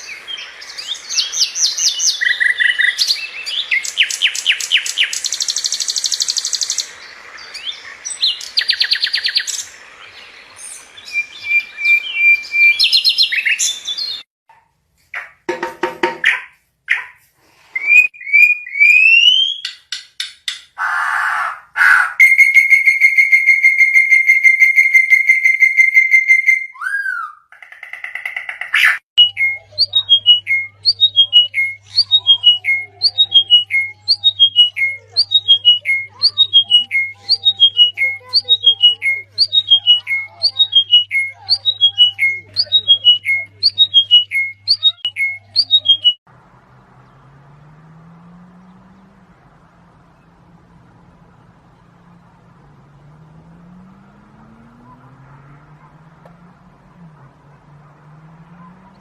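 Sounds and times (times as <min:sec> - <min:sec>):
bird calling with whistled trill: 0:00.0 - 0:14.2, 0:17.8 - 0:19.9, 0:21.0 - 0:46.2.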